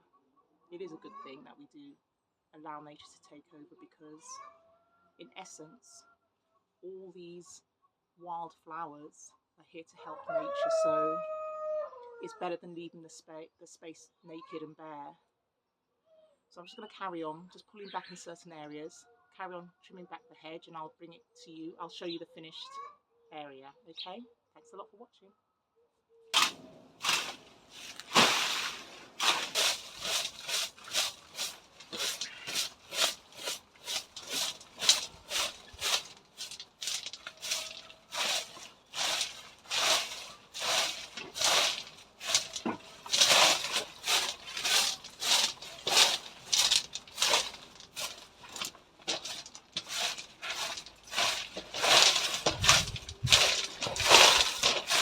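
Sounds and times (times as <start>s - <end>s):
scraping rustling strokes in foliage: 26.4s - 55.0s.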